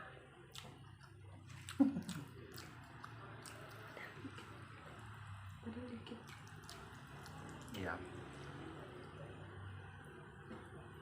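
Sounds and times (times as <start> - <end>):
lip and tongue clicks: 0.5 - 4.5
wet chewing and mouth smacking: 0.5 - 4.6, 6.0 - 7.8.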